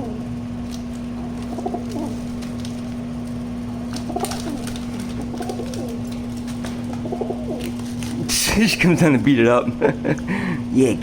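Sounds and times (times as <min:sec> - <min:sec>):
pigeon cooing: 0:00.0 - 0:02.9, 0:03.7 - 0:08.3
steady low hum: 0:00.0 - 0:11.0.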